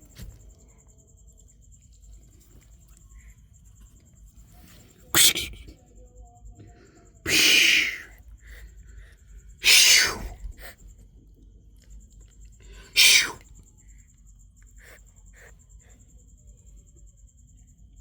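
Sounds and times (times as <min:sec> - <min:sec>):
kitten hissing: 0:05.1 - 0:05.7, 0:07.3 - 0:08.8, 0:09.6 - 0:10.8, 0:12.7 - 0:13.5, 0:14.8 - 0:15.6.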